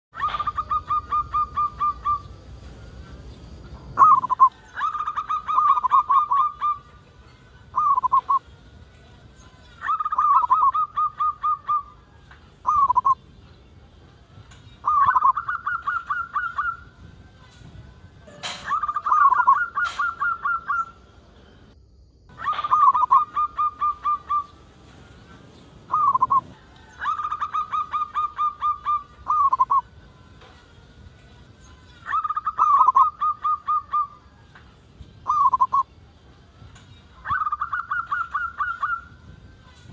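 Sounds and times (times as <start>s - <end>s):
dove cooing: 0.2s - 2.4s, 3.9s - 6.9s, 7.8s - 8.4s, 9.8s - 12.0s, 12.6s - 13.2s, 14.8s - 17.0s, 18.3s - 21.0s, 22.3s - 24.6s, 25.8s - 29.9s, 32.0s - 34.3s, 35.2s - 35.8s, 37.2s - 39.2s.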